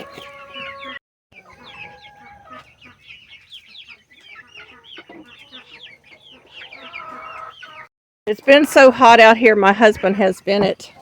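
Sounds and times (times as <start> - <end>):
chicks peeping: 0.0 - 7.9.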